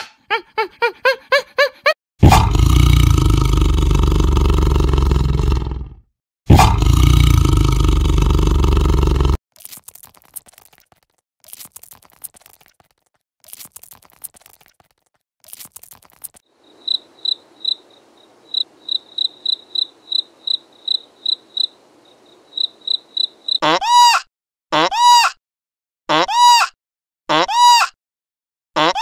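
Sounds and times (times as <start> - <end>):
insect chirping: 15.5 - 23.6.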